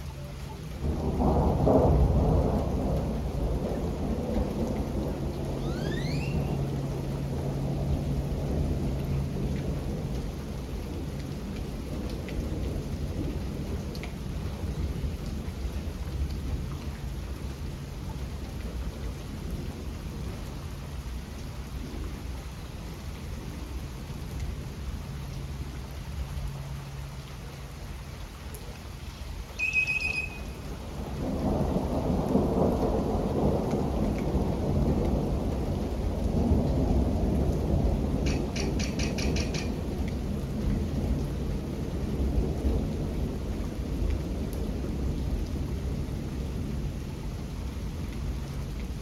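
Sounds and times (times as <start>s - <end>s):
steady rain: 0.0s - 49.0s
low rolling thunder: 0.6s - 26.8s, 30.5s - 49.0s
short high-pitched chirp: 5.6s - 6.6s, 29.6s - 30.5s.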